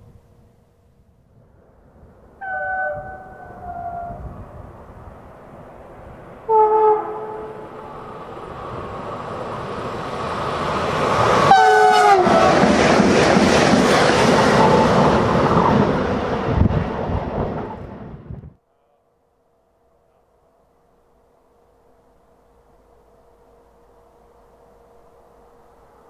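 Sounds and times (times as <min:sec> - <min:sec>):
train horn blast: 0:02.4 - 0:04.4, 0:06.5 - 0:07.8, 0:11.5 - 0:12.6
train wheels clattering on rails: 0:09.4 - 0:17.8.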